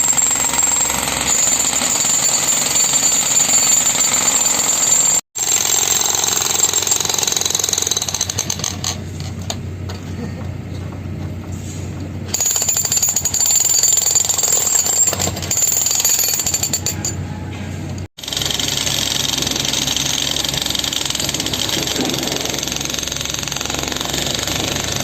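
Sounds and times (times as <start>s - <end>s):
breaker hammer on concrete: 0.0s - 17.6s.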